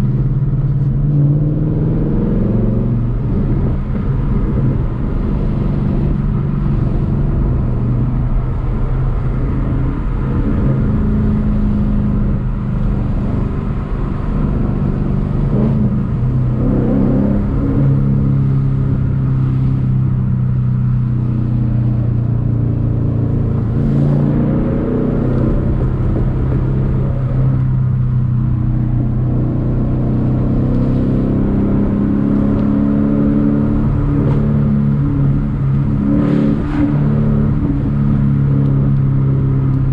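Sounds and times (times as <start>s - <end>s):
car engine and exhaust driving: 0.0s - 39.9s.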